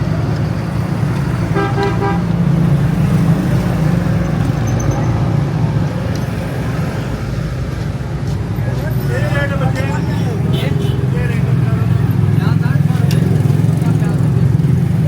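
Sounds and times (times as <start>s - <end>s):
horn beeping: 1.4s - 2.4s.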